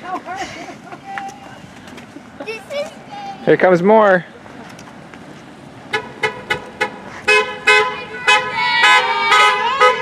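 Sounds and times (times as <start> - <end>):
car horns honking: 5.8 - 10.0.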